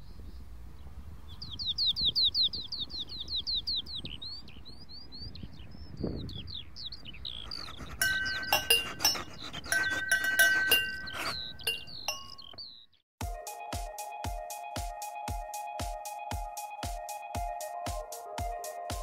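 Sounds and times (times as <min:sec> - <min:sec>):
bird singing: 0:00.0 - 0:13.0.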